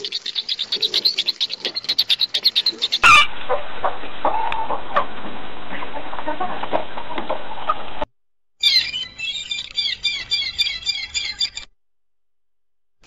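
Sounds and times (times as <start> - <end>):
bird calls: 0.0 - 3.3, 8.6 - 11.7
dove call rapid pulsing: 0.0 - 3.3, 8.6 - 11.6.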